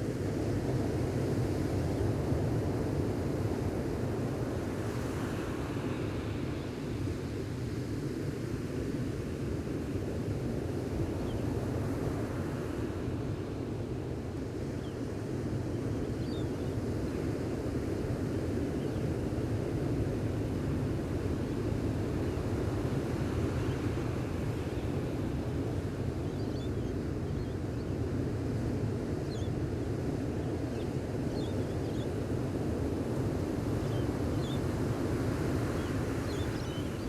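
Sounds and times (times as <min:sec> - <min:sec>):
ocean surf washing on beach: 0:00.0 - 0:14.6, 0:19.2 - 0:26.2, 0:32.1 - 0:37.0
wind on microphone: 0:15.7 - 0:37.0.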